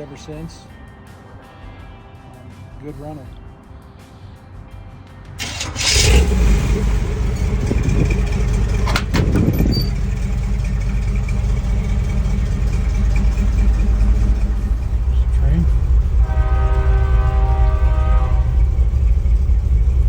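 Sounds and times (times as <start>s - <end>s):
engine running: 5.4s - 20.0s.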